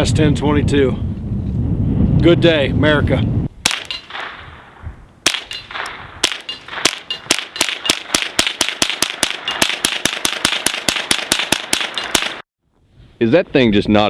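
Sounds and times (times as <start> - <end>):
suppressed rifle shots: 3.6 - 4.6, 5.2 - 12.4.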